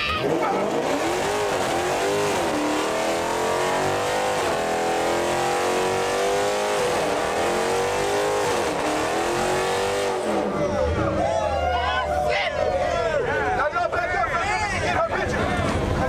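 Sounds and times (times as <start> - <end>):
car engine revving: 0.0 - 11.2.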